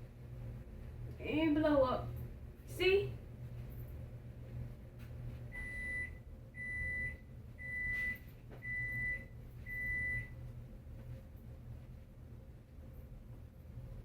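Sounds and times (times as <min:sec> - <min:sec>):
microwave oven beeping: 0:05.5 - 0:10.6.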